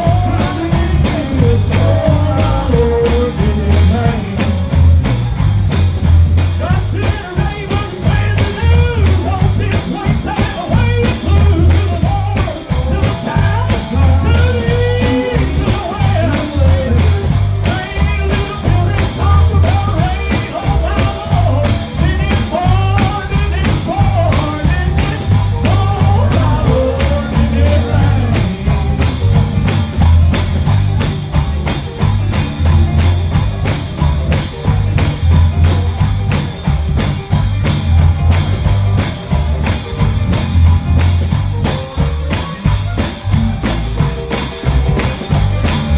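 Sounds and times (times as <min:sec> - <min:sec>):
person singing: 0:00.0 - 0:05.2, 0:06.5 - 0:30.3
band playing gospel song: 0:00.0 - 0:45.9.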